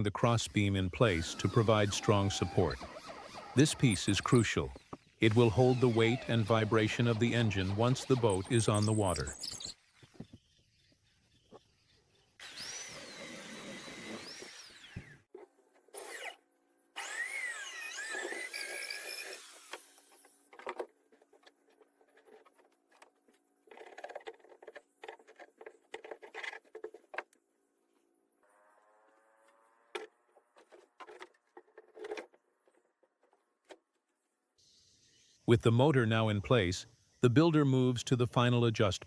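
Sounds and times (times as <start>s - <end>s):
power drill running: 1.1s - 9.7s, 12.4s - 15.3s, 17.0s - 20.4s.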